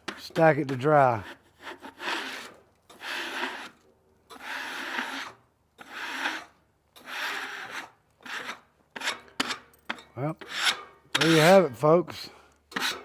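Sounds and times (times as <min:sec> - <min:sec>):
rasping scrapes on wood: 0:01.2 - 0:09.2, 0:10.4 - 0:11.6, 0:12.8 - 0:13.0.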